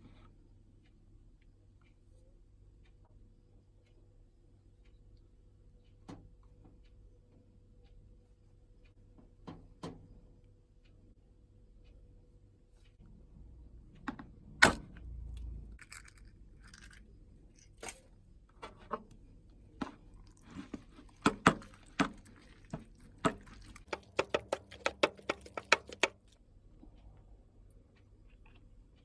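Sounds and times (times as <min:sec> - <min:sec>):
rapid utensil taps: 0:21.2 - 0:26.4
kitchen utensils knocking: 0:23.9 - 0:26.1.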